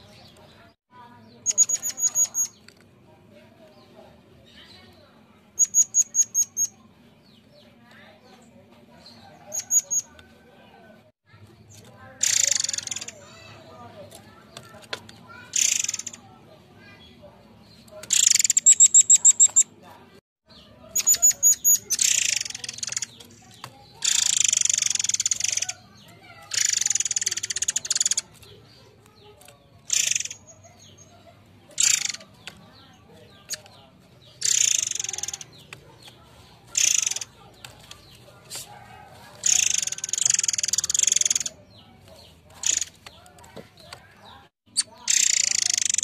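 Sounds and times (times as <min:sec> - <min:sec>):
harsh high-pitched bird chatter: 0:00.0 - 0:10.4, 0:11.3 - 0:46.0
songbird rattling trills: 0:01.4 - 0:02.7, 0:05.6 - 0:06.8, 0:11.7 - 0:13.7, 0:15.3 - 0:16.2, 0:18.1 - 0:19.7, 0:20.6 - 0:41.6, 0:42.2 - 0:46.0.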